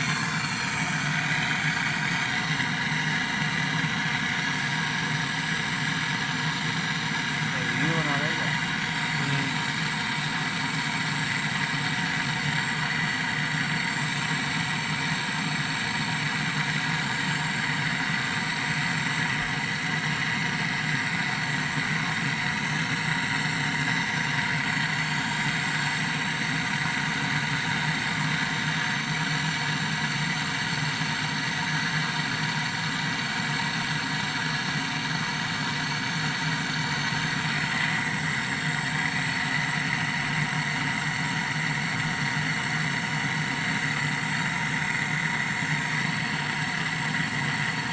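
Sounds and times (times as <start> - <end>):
air conditioner humming: 6.8 - 10.4.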